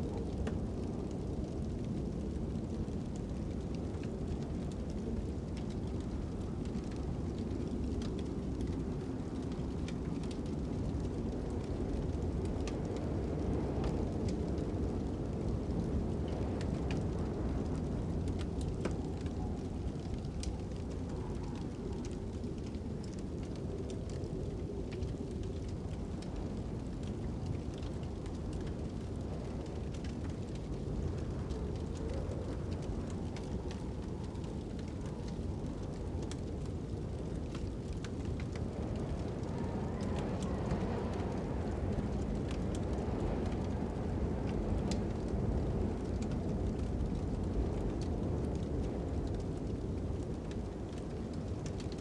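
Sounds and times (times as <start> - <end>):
fire crackling and popping: 0.0 - 52.0
low rush of wind: 0.0 - 52.0.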